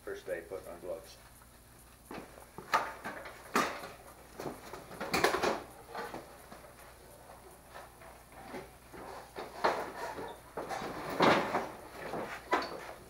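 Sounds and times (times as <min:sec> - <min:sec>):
objects knocking and clattering: 0:02.1 - 0:06.8, 0:07.7 - 0:13.0.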